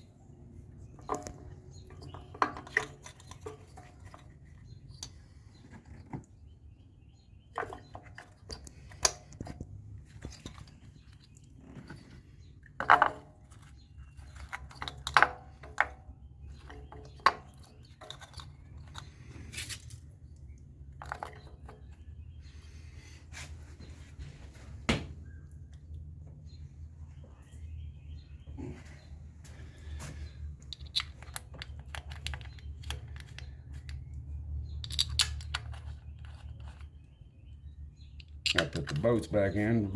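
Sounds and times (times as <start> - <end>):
metal tools clinking and knocking: 12.8 - 19.3, 30.6 - 34.0.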